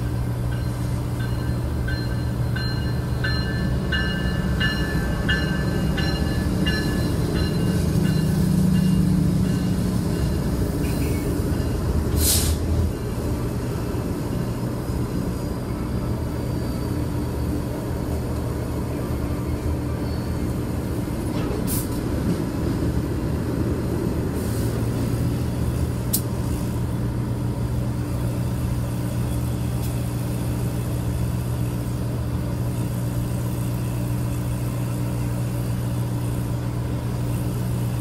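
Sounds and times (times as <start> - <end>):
diesel locomotives rumbling: 0.0 - 38.0
bell ringing: 0.5 - 10.6
brief hiss: 12.2 - 12.7.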